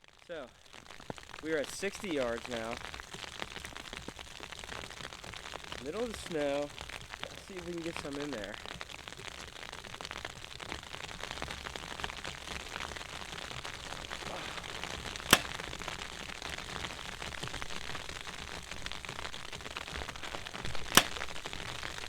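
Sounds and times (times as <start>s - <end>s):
snow storm hiss: 1.2s - 3.6s, 5.6s - 8.8s, 11.9s - 22.0s
bow string snap: 14.1s - 15.6s, 20.1s - 21.3s.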